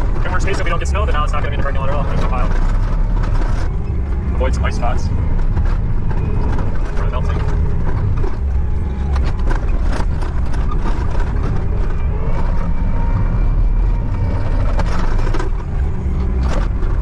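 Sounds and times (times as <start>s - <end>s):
loader engine running: 0.0s - 17.0s.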